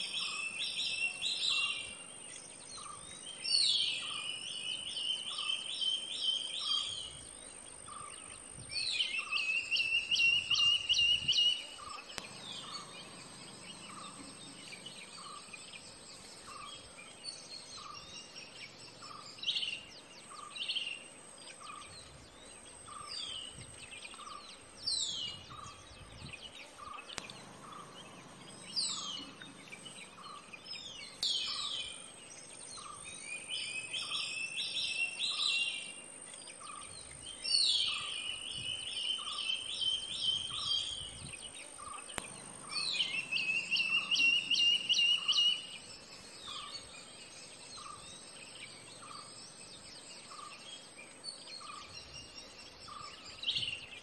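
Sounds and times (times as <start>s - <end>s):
birds whistling: 0.0s - 36.0s, 36.6s - 54.0s
steady high tone: 12.2s - 15.8s, 27.2s - 30.8s, 42.2s - 45.9s.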